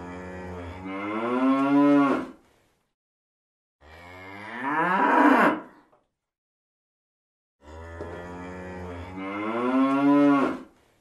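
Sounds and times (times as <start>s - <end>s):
cow mooing: 3.8s - 5.7s, 7.6s - 10.7s.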